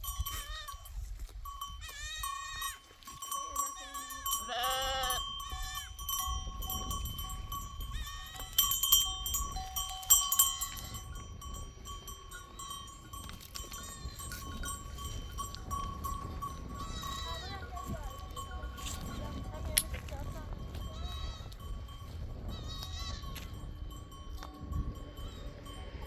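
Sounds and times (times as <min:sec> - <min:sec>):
sheep and goats bleating: 0:00.0 - 0:01.0, 0:01.6 - 0:26.0
livestock bells ringing: 0:00.0 - 0:26.0.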